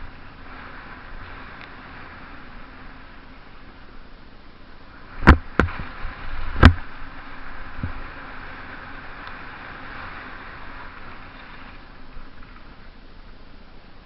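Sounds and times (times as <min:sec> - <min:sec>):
steady rushing hiss: 0:00.0 - 0:14.0
sharp knocks: 0:05.2 - 0:05.8.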